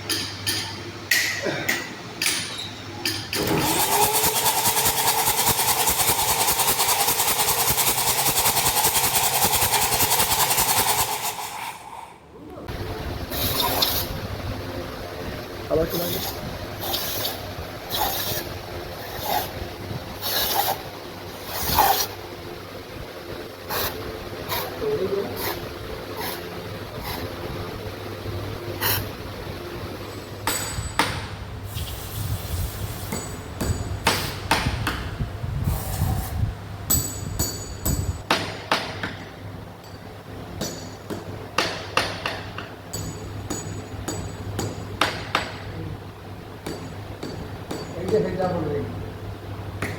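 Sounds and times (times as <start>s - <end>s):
hammer tapping on metal: 40.6s - 45.7s, 46.6s - 48.4s.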